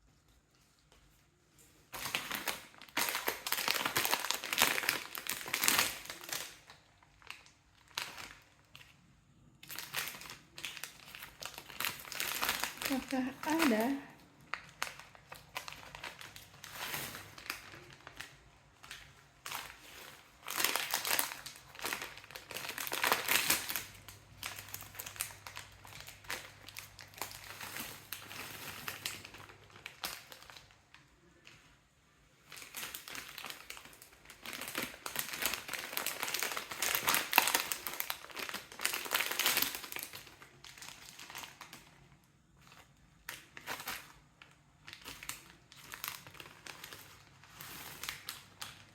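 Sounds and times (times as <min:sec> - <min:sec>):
plastic snack packets crinkling: 0:00.0 - 0:48.9.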